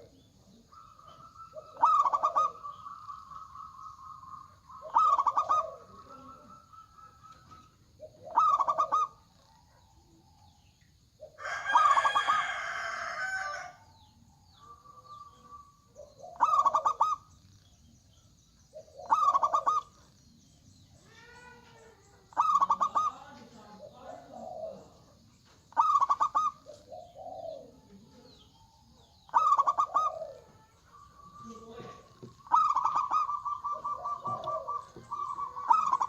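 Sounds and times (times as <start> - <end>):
doves cooing: 0.0 - 17.9, 18.6 - 36.0
harsh bird call: 31.1 - 36.0.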